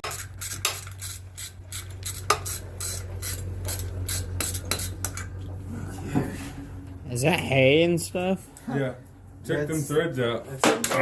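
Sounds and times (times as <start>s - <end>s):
ratchet wrench clicking: 0.0s - 5.3s
steady low hum: 0.0s - 11.0s.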